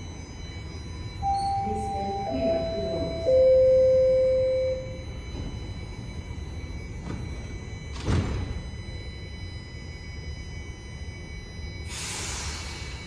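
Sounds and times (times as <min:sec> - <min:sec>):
train door chime: 0:00.0 - 0:09.7
train rumble at platform: 0:00.0 - 0:13.0.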